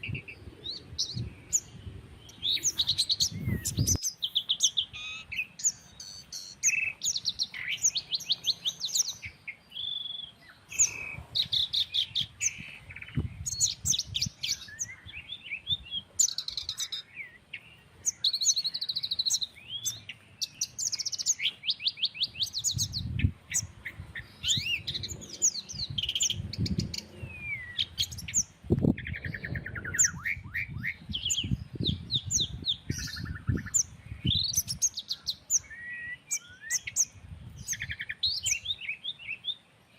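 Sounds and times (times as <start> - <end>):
gusty wind rumble: 0.0 - 4.0, 10.8 - 16.0, 22.5 - 34.8, 37.1 - 38.0
songbirds singing: 0.0 - 39.9.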